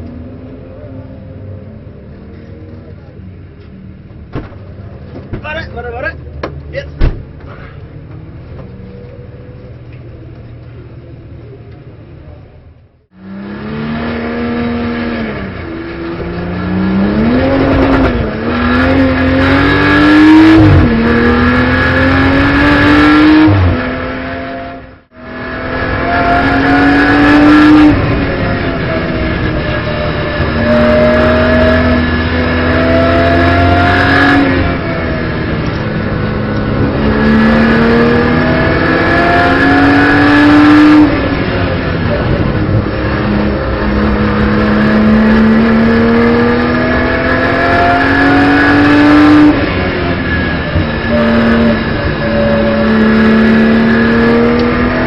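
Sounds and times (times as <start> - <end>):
race car engine accelerating: 13.2 - 55.0.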